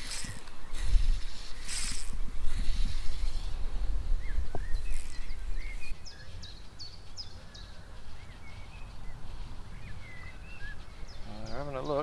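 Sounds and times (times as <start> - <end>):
wind rumbling on microphone: 0.0 - 6.6
birds chirping: 0.0 - 12.0.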